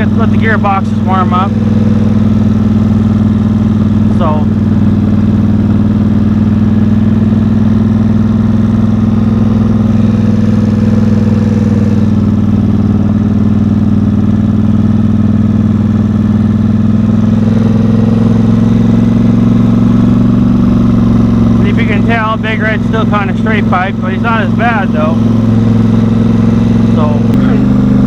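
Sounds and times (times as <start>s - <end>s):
off-road vehicle engine running: 0.0s - 28.0s.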